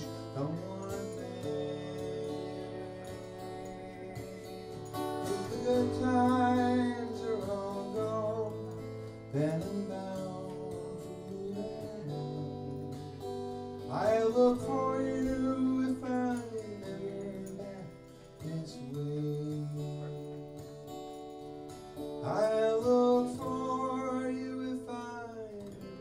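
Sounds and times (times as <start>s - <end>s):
acoustic guitar playing: 0.0s - 26.0s.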